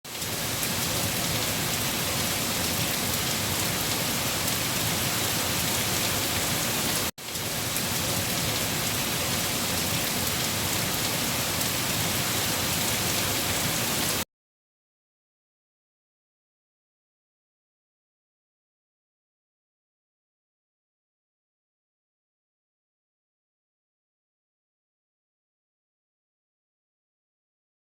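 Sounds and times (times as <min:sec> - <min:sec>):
heavy rain on leaves: 0:00.1 - 0:14.2.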